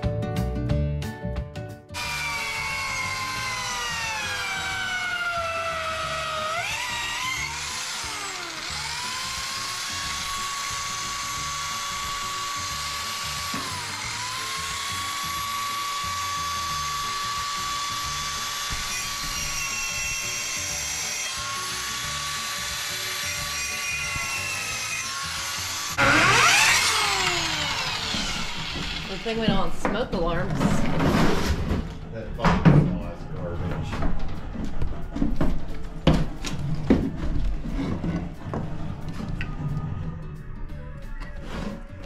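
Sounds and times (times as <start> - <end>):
power drill whining into wood: 2.0 - 29.8
harsh burst of tool noise: 2.0 - 29.9.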